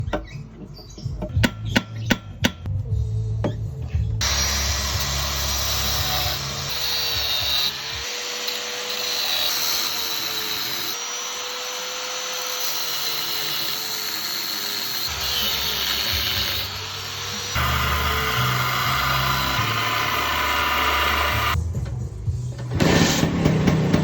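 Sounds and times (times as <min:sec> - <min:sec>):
electric power tool running: 0:04.2 - 0:21.6.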